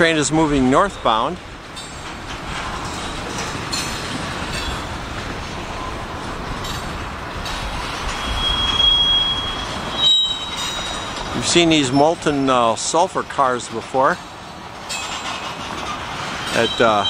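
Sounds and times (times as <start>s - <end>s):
freight train wheels rumbling: 0.0s - 17.0s
high-pitched wheel squeal: 8.0s - 12.4s, 14.9s - 17.0s.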